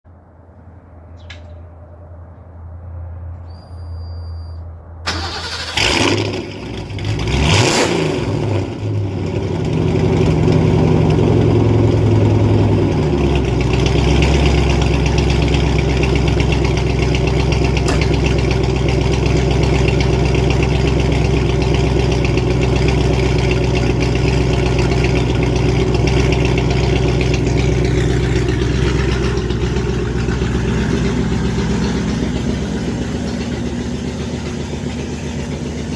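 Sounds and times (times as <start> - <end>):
car engine cranking and idling: 5.0 - 35.9.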